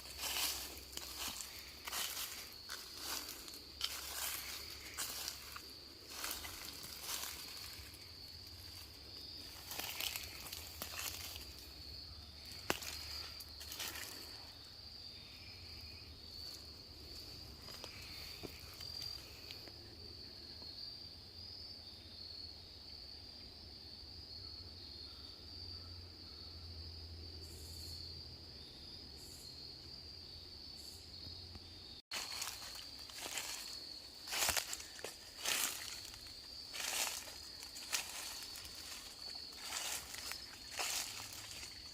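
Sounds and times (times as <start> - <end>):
rustling footsteps: 0.0 - 14.6, 16.4 - 19.6, 32.1 - 41.9
high-pitched insect drone: 0.0 - 19.8, 32.2 - 41.9.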